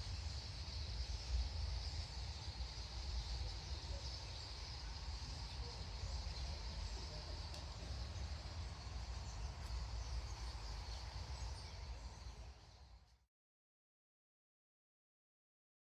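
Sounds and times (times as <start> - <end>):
starling flock chattering: 2.4 - 12.7.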